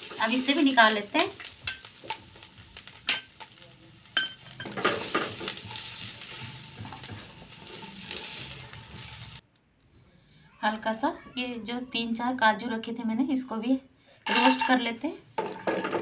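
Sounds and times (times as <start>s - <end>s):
vegetables sizzling in hot oil: 0.0s - 9.4s.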